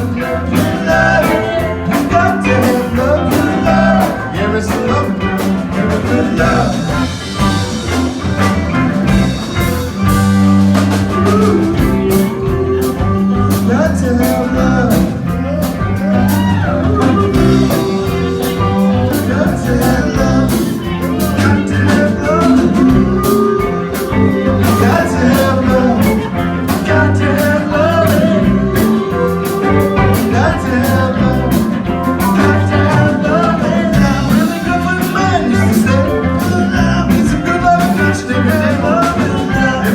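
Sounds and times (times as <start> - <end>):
person singing: 0.0 - 39.9
rock and roll band playing: 0.0 - 39.9.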